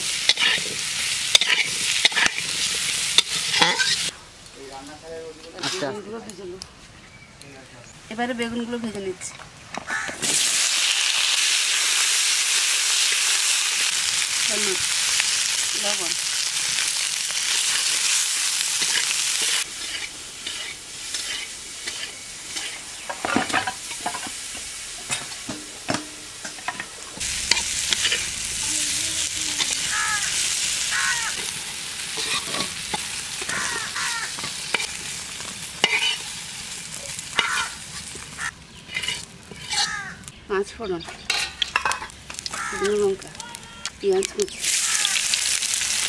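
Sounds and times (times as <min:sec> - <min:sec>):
metal spatula scraping wok: 0:00.0 - 0:04.1, 0:05.6 - 0:06.1, 0:18.8 - 0:40.3, 0:41.1 - 0:42.2
vegetables sizzling in hot oil: 0:00.0 - 0:04.8, 0:09.9 - 0:46.0.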